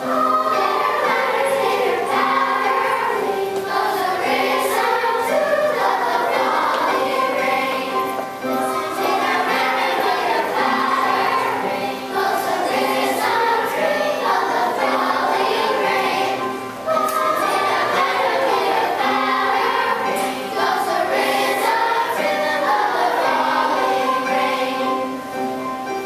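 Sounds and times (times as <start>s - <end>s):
children's choir singing: 0.0s - 26.0s
piano accompaniment: 0.0s - 26.0s.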